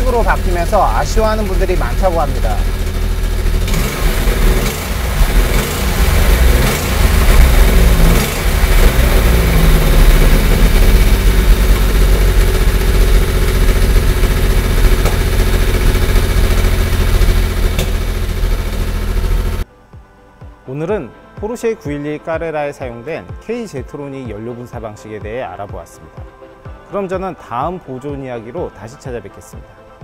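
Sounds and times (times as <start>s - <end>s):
car engine running: 0.0s - 19.6s.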